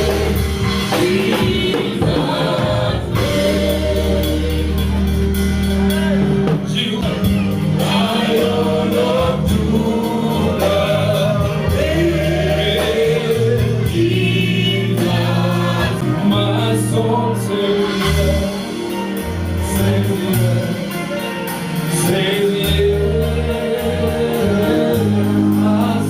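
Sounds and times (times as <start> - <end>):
band with bass and drums: 0.0 - 26.0
gospel singing voices: 0.0 - 26.0.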